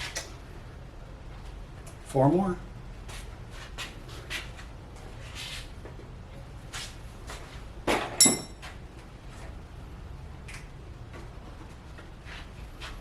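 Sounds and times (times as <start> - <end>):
metal tools being handled: 8.2 - 8.6
sharp ringing metal knocks: 8.2 - 8.6.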